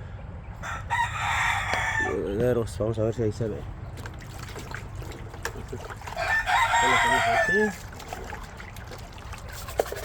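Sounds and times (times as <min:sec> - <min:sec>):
rooster crowing: 0:00.6 - 0:02.2, 0:06.2 - 0:07.8
chicken calls: 0:05.9 - 0:07.8.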